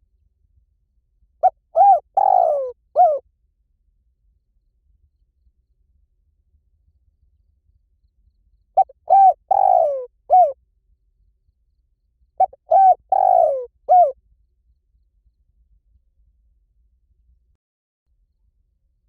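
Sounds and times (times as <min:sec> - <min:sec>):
dove cooing: 0:01.4 - 0:03.2, 0:08.8 - 0:10.6, 0:12.4 - 0:14.2.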